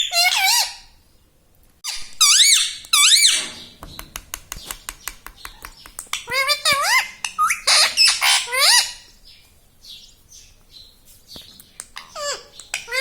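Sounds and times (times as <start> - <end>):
parrot squawking and chirping: 0.0 - 1.0, 1.8 - 3.7, 5.4 - 9.2, 11.8 - 13.0.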